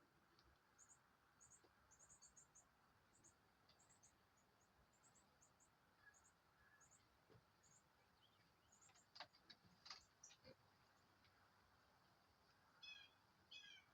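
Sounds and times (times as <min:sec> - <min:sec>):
short animal calls: 0:12.8 - 0:13.9.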